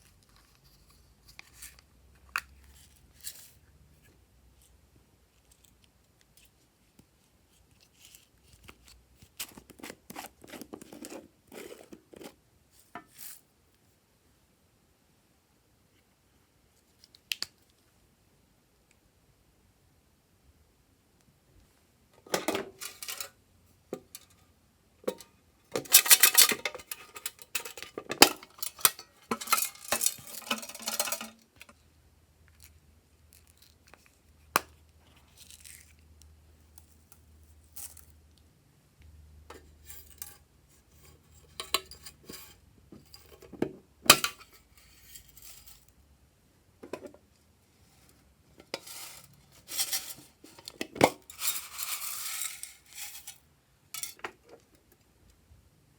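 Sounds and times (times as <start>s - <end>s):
utensil scraping a bowl: 9.5s - 12.4s, 48.0s - 53.4s.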